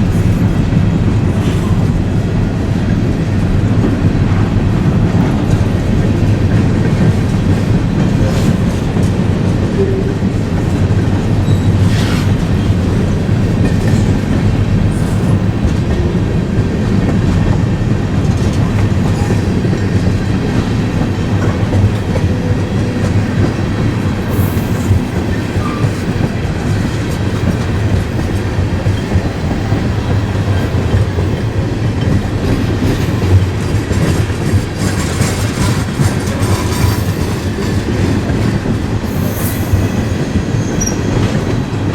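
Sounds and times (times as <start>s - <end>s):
freight train rumble: 0.0s - 41.9s
wheels clicking over rail joints: 2.9s - 41.9s.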